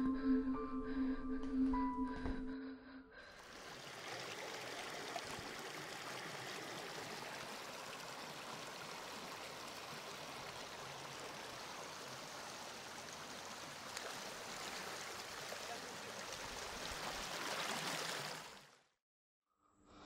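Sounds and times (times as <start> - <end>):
running water stream: 3.3 - 18.8.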